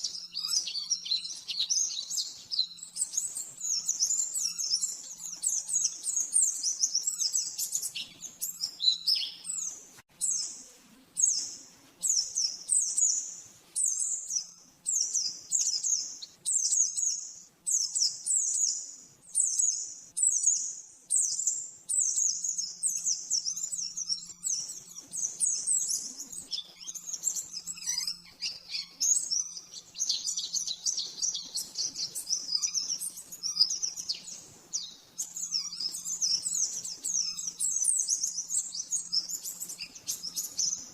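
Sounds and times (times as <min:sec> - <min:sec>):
bird chirping and warbling: 0:22.6 - 0:40.9.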